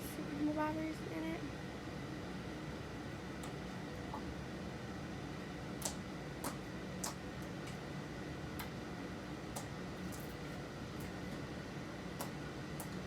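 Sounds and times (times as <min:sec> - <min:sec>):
slime clicking and popping: 0:05.8 - 0:07.8.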